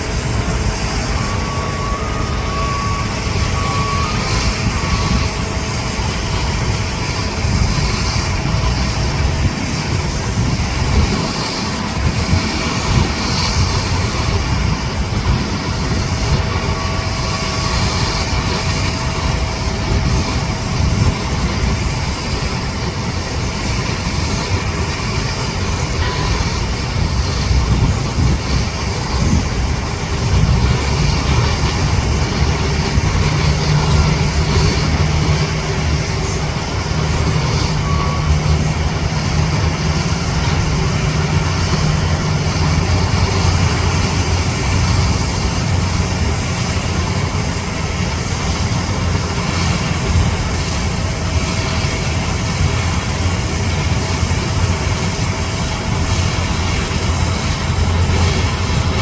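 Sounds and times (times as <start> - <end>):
jet engines rumbling: 0.0 - 59.0.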